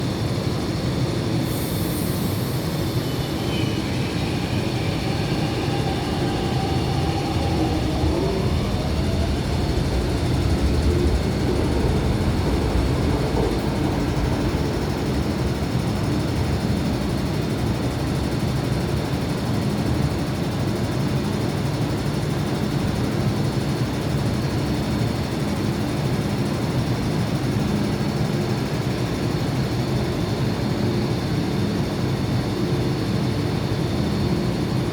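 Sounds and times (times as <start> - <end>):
train rail rumble: 1.2 - 20.4
train motor whines sliding in pitch: 1.4 - 17.8.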